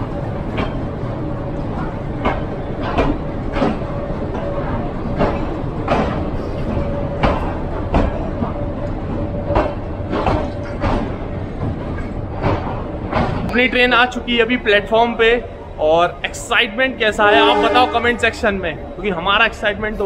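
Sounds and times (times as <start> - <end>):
wheels clacking over rail joint: 0.0 - 1.0, 1.6 - 14.2
train coaches rumbling: 0.0 - 20.0.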